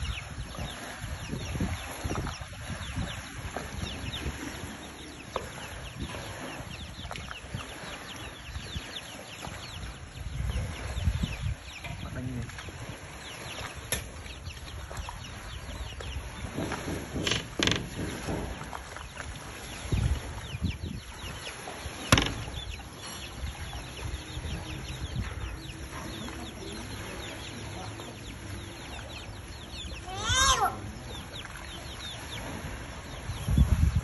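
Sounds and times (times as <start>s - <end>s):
birds chirping: 0.0s - 34.0s
sharp knocks: 16.4s - 18.7s, 22.1s - 22.6s.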